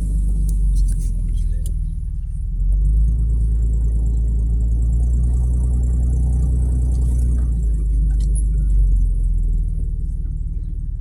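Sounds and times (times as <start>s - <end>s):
engine rumbling inside cab: 0.0s - 11.0s.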